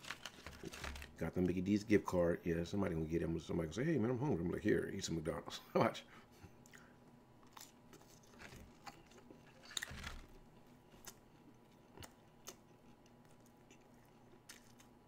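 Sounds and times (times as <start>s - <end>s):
faint chewing: 6.4s - 15.0s.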